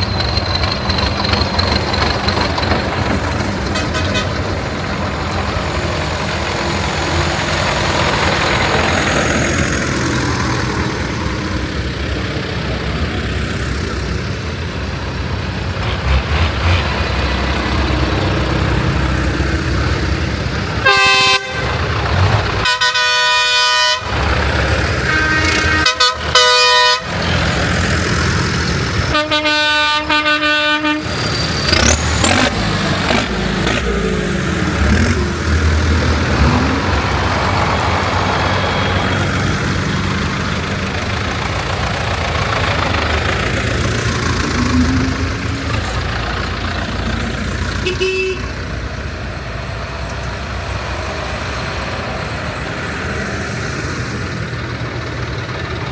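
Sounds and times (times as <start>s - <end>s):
tractor horns honking: 0.0s - 10.9s, 15.6s - 48.9s
tractor engines rumbling: 0.0s - 55.9s.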